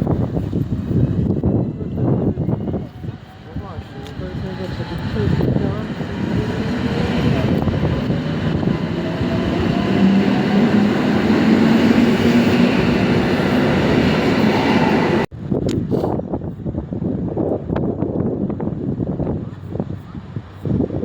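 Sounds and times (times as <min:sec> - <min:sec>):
train rumbling with whine: 0:00.0 - 0:21.0.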